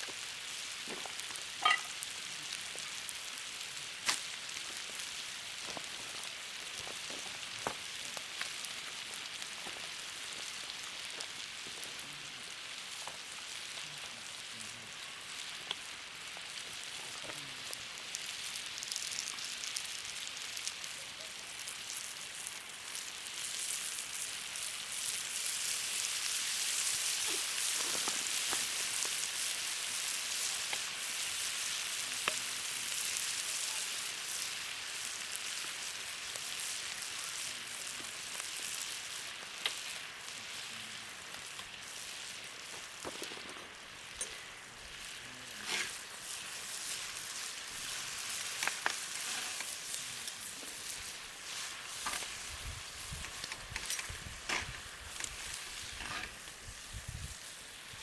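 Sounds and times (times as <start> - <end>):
food sizzling in a pan: 0.0 - 58.0
sharp clicks and scrapes: 56.0 - 56.4.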